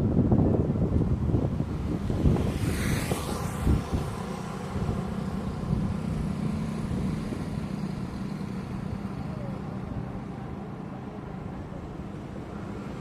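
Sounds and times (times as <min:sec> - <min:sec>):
low engine hum: 0:00.0 - 0:13.0
vehicle passing close: 0:01.0 - 0:10.4.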